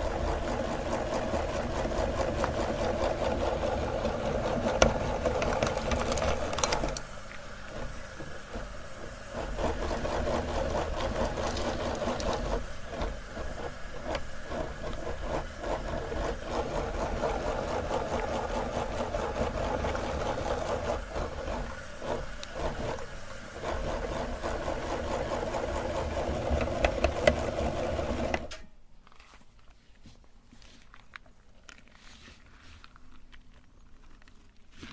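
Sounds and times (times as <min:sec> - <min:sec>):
meat grinder motor humming: 0:00.0 - 0:28.5
faint clicks and crinkling: 0:29.0 - 0:34.9.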